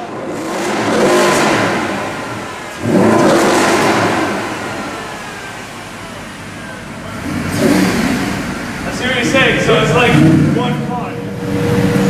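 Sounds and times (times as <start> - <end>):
car engines revving with echo: 0.0 - 12.0.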